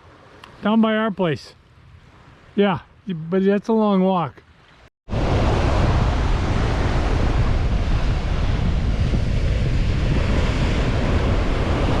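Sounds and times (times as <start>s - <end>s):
ocean surf on beach: 0.0s - 12.0s
wind buffeting microphone: 5.1s - 12.0s.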